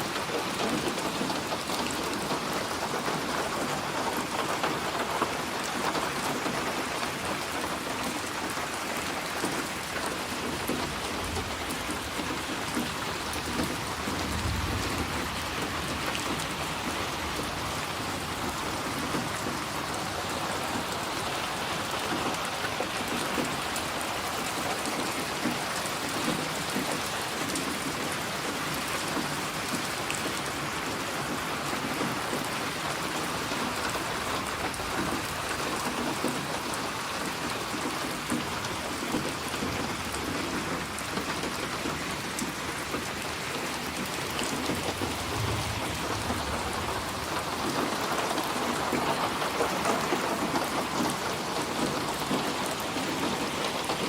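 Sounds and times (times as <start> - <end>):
rain pattering: 0.0 - 54.0
low rumble: 44.8 - 48.3.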